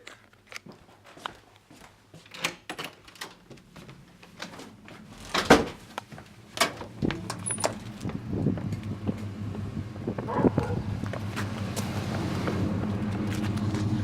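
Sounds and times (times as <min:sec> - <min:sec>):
low steady rumble: 0:06.4 - 0:14.0
keys clicking and rattling: 0:07.0 - 0:08.1.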